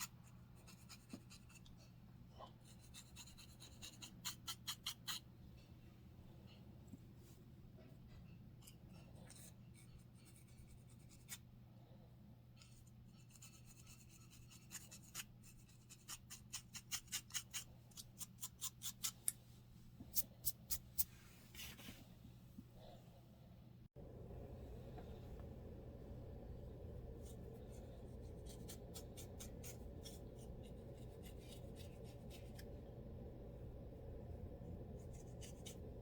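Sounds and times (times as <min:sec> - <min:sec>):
low steady hum: 0:00.0 - 0:16.5, 0:19.1 - 0:36.0
scratching scalp: 0:27.1 - 0:32.7, 0:34.8 - 0:36.0.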